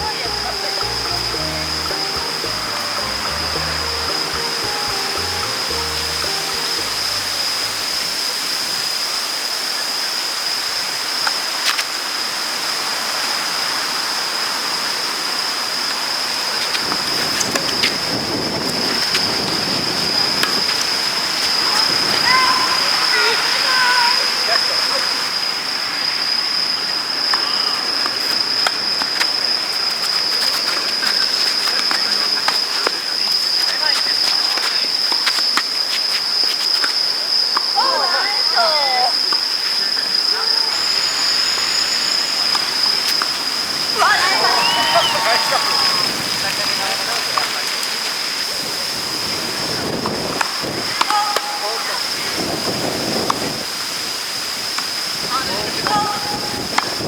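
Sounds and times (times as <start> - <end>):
high-pitched whine: 0.0 - 8.8, 40.7 - 43.6
high-pitched insect drone: 0.0 - 11.1, 39.2 - 44.5
rushing outdoor noise: 0.0 - 57.0.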